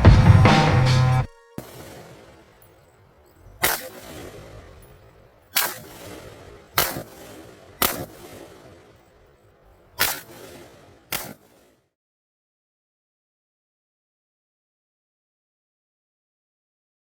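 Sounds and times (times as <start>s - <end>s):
rifle shots with echo: 0.0s - 2.9s, 3.6s - 11.7s.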